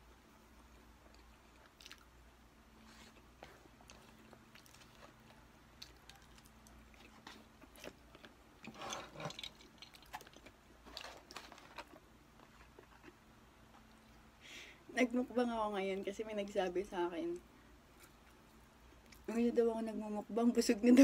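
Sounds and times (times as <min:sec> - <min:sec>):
chewing: 0:00.7 - 0:14.3, 0:17.4 - 0:19.3.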